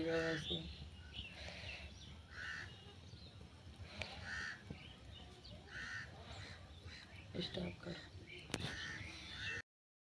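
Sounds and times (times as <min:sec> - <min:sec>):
bird calling: 0:00.0 - 0:03.0, 0:04.0 - 0:04.9, 0:05.6 - 0:09.6.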